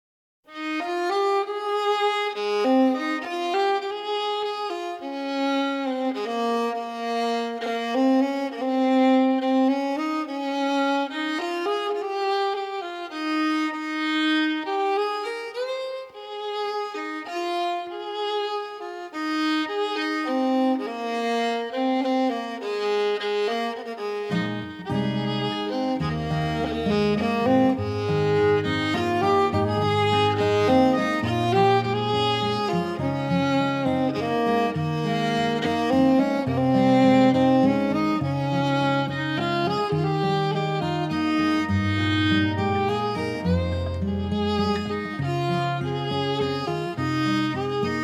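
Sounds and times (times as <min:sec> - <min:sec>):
violin playing slow melody: 0:00.5 - 0:48.0
low string notes: 0:24.3 - 0:47.8.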